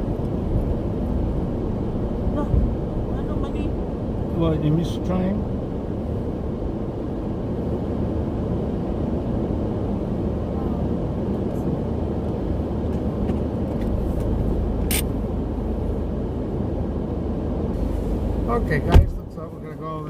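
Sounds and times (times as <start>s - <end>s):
car engine rumble in cabin: 0.0s - 20.0s
road noise: 0.0s - 20.0s
sharp click: 14.8s - 15.1s.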